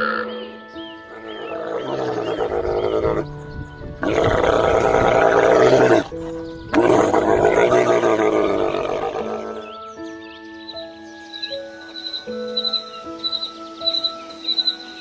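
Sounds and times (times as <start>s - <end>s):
background music: 0.0s - 15.0s
camel bellowing: 1.1s - 3.3s, 4.0s - 9.7s.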